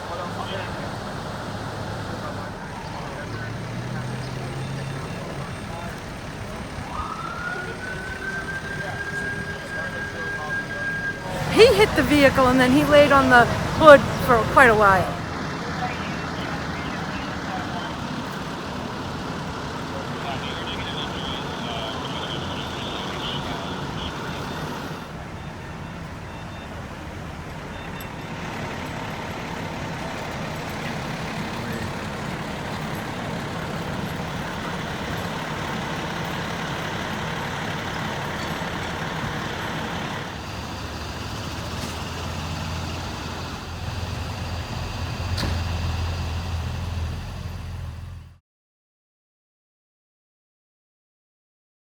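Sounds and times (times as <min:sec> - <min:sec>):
vehicle engines in traffic: 0:00.0 - 0:48.4.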